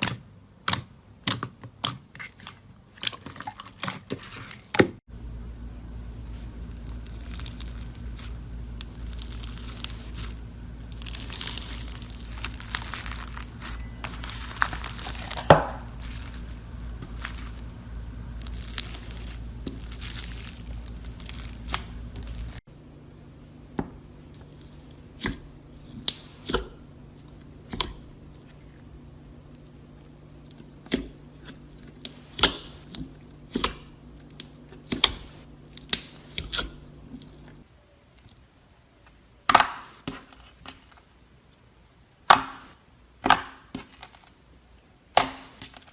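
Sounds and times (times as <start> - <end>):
crisp material crunching and crackling: 6.3 - 22.7.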